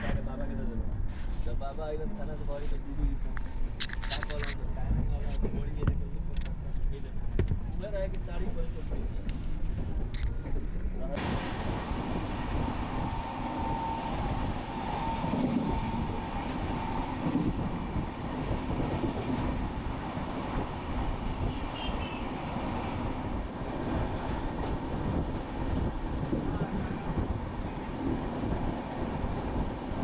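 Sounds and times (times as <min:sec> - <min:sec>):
train wheels rumbling on rails: 0:04.6 - 0:30.0
faint steady whine: 0:10.2 - 0:18.4.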